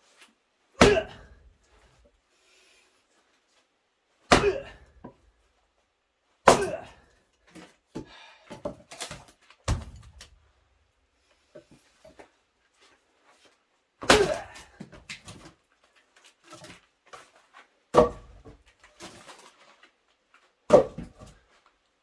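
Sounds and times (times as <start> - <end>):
axe splitting log: 0.8 - 1.3, 4.3 - 4.9, 6.5 - 7.0, 8.0 - 10.4, 14.0 - 15.5, 17.9 - 18.6, 20.7 - 21.4.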